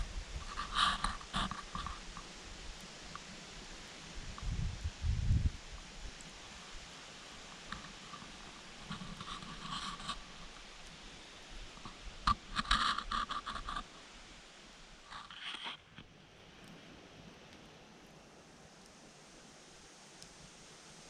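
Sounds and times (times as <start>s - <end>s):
rustling and scraping: 0.0s - 2.4s, 7.4s - 11.0s, 11.7s - 14.1s, 15.0s - 16.1s
faint steady hiss: 0.0s - 21.0s.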